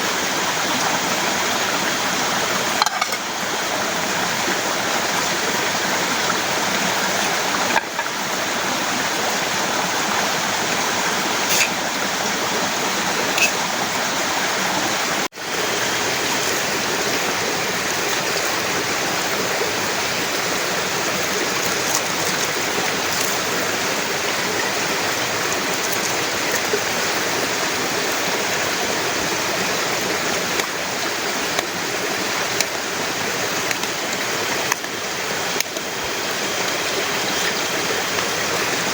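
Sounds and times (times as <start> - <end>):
sharp drip-like ticks: 13.3 - 13.6, 21.0 - 23.8, 32.4 - 32.8, 33.5 - 38.3.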